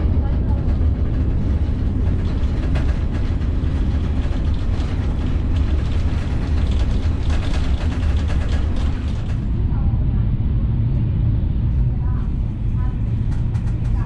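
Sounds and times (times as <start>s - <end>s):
train cabin low rumble: 0.0s - 14.0s
light clicking and rattling: 0.2s - 9.4s.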